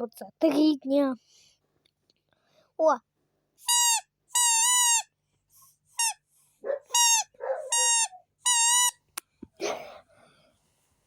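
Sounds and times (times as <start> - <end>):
toy whistle toots: 3.6 - 5.1, 6.9 - 9.0.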